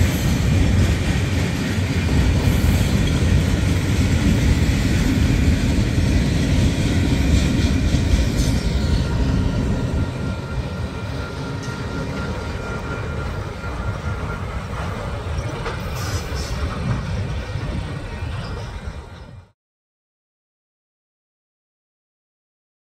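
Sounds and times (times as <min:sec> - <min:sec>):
train wheels rumbling on rails: 0:00.0 - 0:19.6
thin steady squeal: 0:08.8 - 0:16.7.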